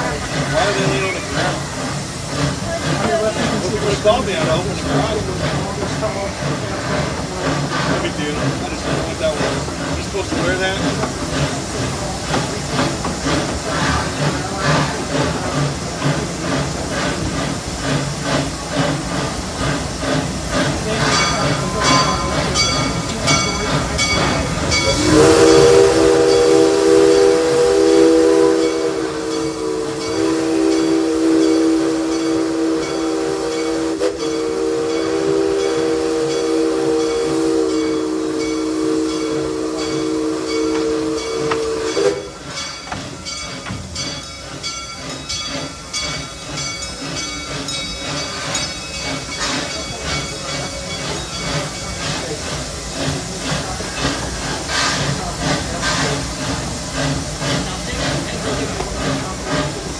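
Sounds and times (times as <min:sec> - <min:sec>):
steam engine hissing and chuffing: 0:00.0 - 0:59.9
steam locomotive chime whistle: 0:20.6 - 0:59.9.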